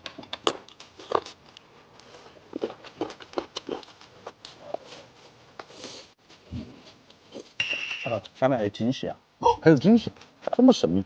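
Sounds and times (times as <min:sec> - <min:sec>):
chewing food: 0:00.4 - 0:04.9.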